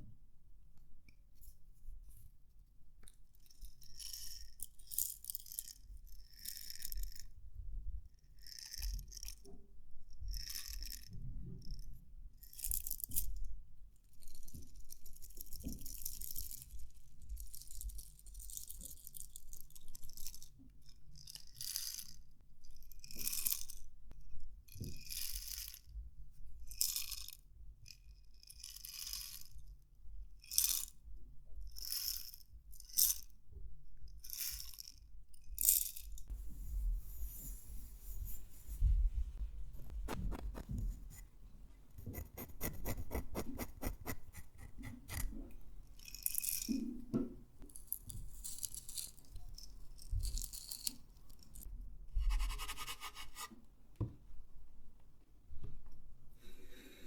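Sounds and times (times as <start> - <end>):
scratching on wood: 36.3 - 41.4, 42.0 - 45.6.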